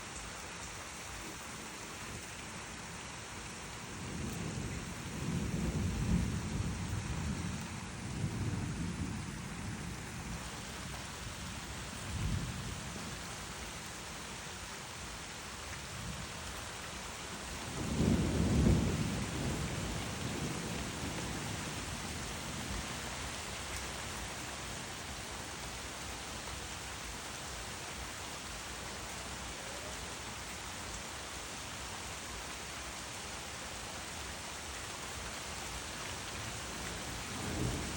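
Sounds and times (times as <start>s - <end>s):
steady rain: 0.0s - 37.9s
rolling thunder: 4.0s - 10.4s, 17.7s - 22.8s, 37.3s - 37.9s.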